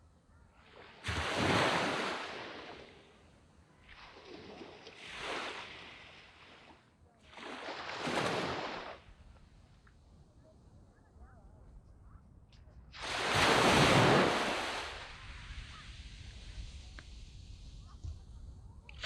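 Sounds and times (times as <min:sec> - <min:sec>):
waves breaking on sandy beach: 0:00.6 - 0:09.3, 0:13.0 - 0:18.0.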